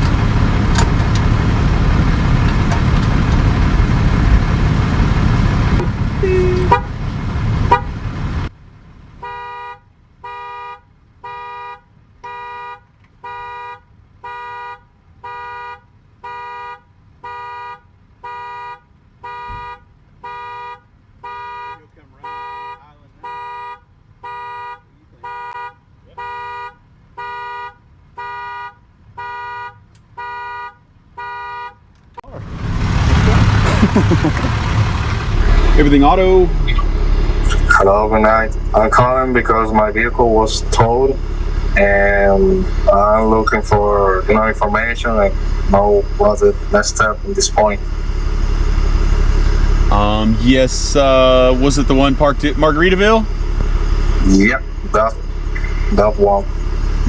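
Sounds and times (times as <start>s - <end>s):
loud rumble and hiss: 32.2s - 57.0s.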